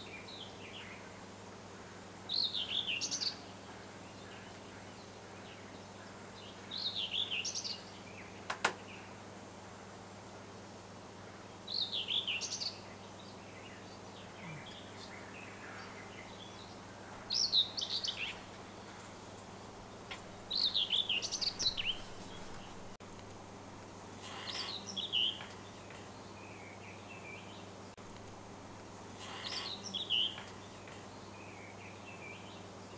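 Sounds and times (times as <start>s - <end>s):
low background hum: 0.0s - 32.9s
songbird warbling: 13.6s - 23.0s, 24.2s - 27.4s, 29.2s - 32.4s.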